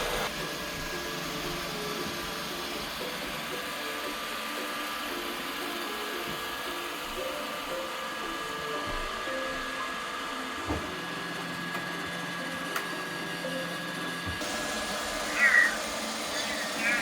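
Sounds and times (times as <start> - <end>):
robot vacuum motors whirring: 0.0 - 17.0.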